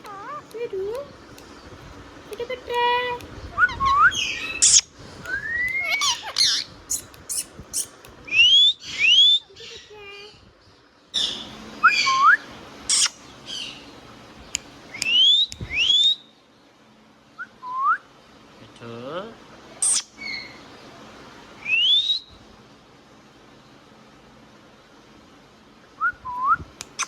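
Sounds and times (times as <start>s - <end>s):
parrot whistling: 3.6s - 9.5s
parrot screeching: 3.7s - 9.5s, 12.9s - 13.7s.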